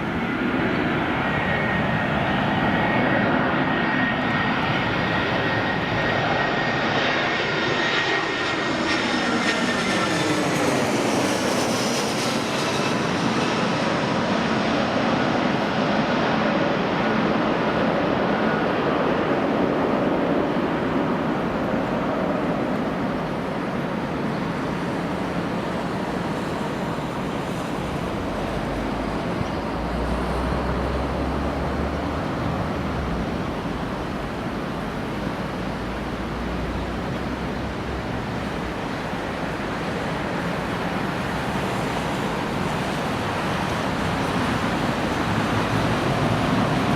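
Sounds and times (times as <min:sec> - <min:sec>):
jet engines roaring: 0:00.0 - 0:46.9.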